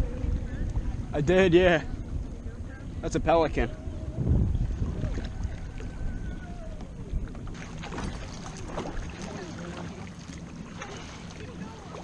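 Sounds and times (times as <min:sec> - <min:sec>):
low steady rumble: 0:00.0 - 0:12.0
paddle splashing in water: 0:07.1 - 0:12.0.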